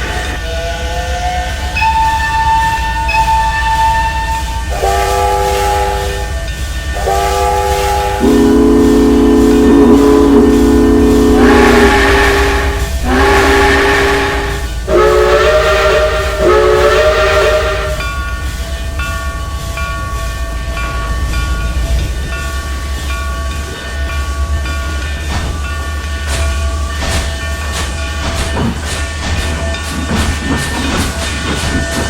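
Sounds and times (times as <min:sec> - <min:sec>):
train running: 0:00.0 - 0:32.0
steam train whistle blasts: 0:00.5 - 0:06.4, 0:07.0 - 0:18.1.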